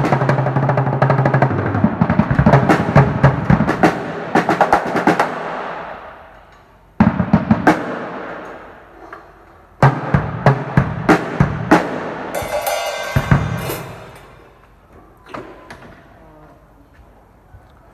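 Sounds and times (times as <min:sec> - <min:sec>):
drum fills: 0:09.8 - 0:14.6
cymbal crash: 0:12.3 - 0:14.7.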